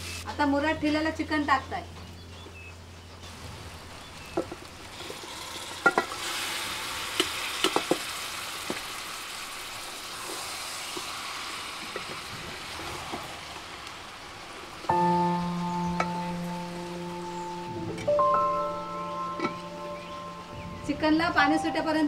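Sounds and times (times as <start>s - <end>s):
chicken sizzling in hot oil: 0.0s - 0.3s, 3.3s - 15.0s
utensils knocking against pot: 5.8s - 6.2s.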